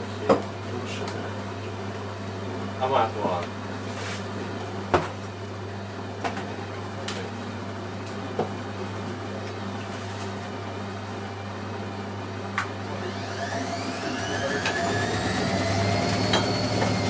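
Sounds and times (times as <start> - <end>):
washing machine motor hum: 0.0 - 17.0
drum motor whine: 11.0 - 17.0.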